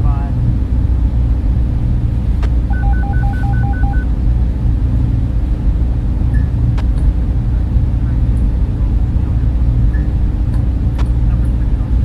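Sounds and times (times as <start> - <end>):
server cooling fans whirring: 0.0 - 12.0
two-toned electronic beeps: 2.7 - 4.1.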